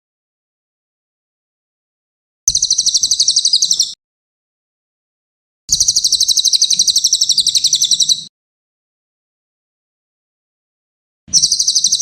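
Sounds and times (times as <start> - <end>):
songbird singing a rapid trill: 2.5 - 4.0, 5.7 - 8.3, 11.3 - 12.0.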